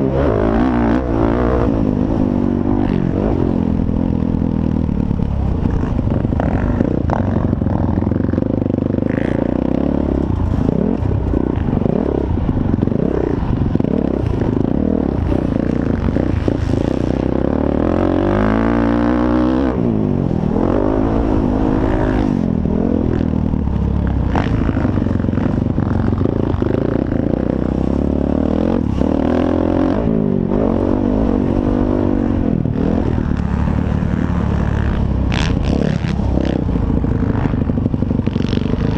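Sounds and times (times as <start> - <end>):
motocross bike engines revving: 0.0 - 38.9.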